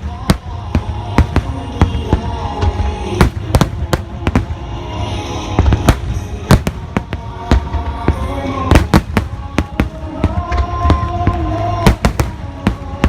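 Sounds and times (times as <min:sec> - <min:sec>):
fireworks bangs: 0:00.0 - 0:13.0
music playing: 0:00.0 - 0:13.0.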